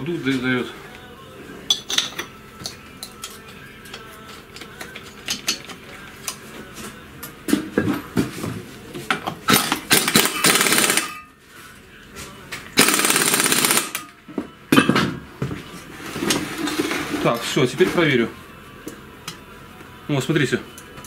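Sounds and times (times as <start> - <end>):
metal tools clinking: 1.7 - 5.8
pneumatic impact wrench hammering: 9.5 - 11.2, 12.8 - 14.1.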